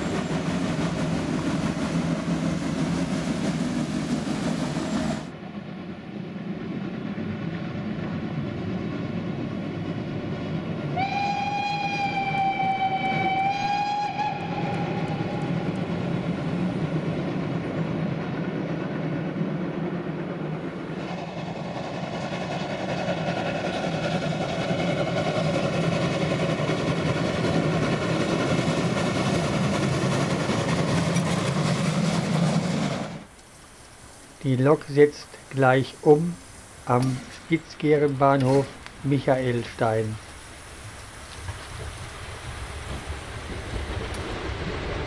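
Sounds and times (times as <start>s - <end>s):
locomotive and train passing: 0.0s - 45.0s
steam whistle: 11.0s - 15.8s.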